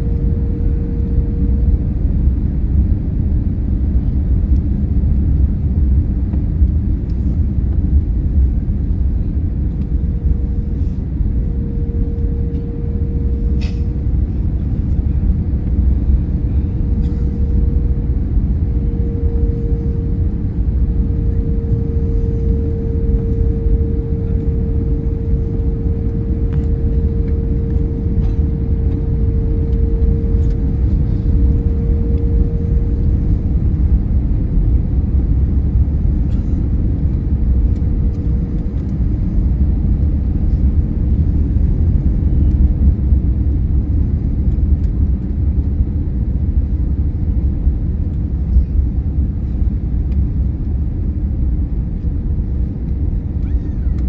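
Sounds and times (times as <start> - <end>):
thin steady whine: 0.0 - 3.6, 6.0 - 43.9
airliner low rumble: 0.0 - 54.0.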